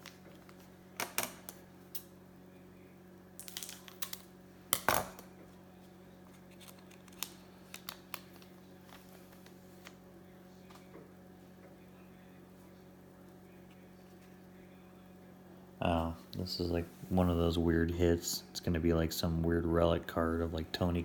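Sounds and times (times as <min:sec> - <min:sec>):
cards and wrappers handled: 0:06.2 - 0:10.0.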